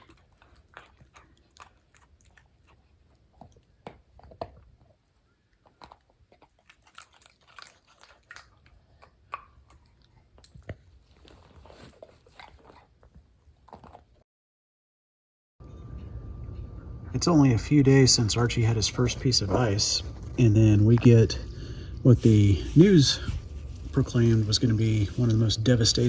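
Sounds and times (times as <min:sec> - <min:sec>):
puppy crunching ice: 0:00.0 - 0:04.9, 0:05.6 - 0:14.1.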